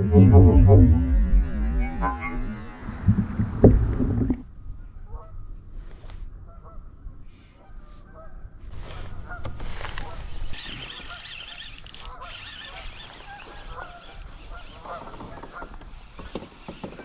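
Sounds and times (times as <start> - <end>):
geese honking: 8.7 - 15.8.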